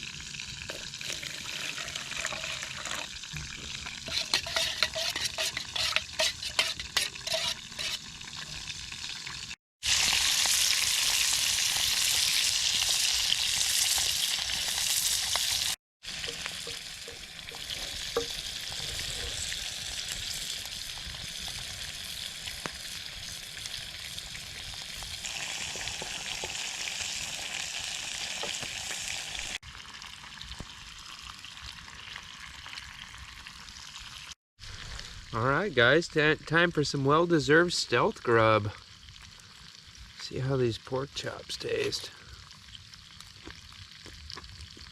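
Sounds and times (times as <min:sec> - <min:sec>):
pork chops sizzling in pan: 0:00.0 - 0:34.8.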